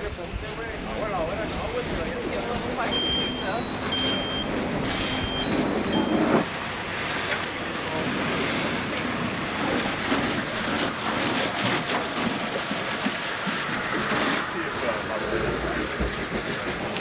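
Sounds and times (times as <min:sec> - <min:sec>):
truck engine running: 0:00.0 - 0:17.0
reversing beep: 0:02.6 - 0:06.5.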